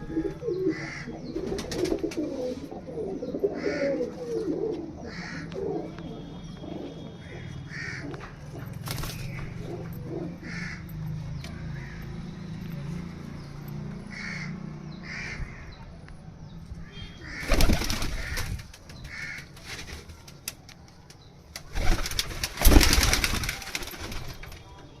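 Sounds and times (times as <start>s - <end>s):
pigeons cooing: 0.0s - 10.9s
loud rustling bursts: 17.4s - 20.7s, 21.6s - 24.8s.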